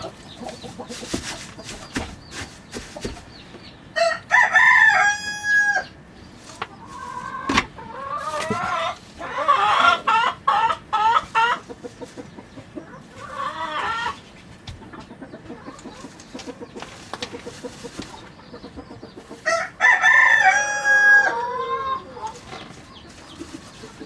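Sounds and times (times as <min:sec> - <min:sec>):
chickens clucking: 0:00.0 - 0:24.0
rooster crowing: 0:04.0 - 0:06.0, 0:19.5 - 0:22.2.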